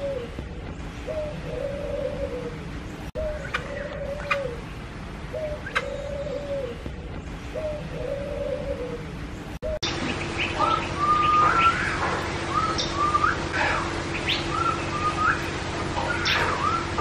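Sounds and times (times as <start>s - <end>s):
steady low hum: 0.0s - 17.0s
bird whistled phrases: 9.6s - 13.4s, 14.2s - 15.5s, 16.1s - 17.0s.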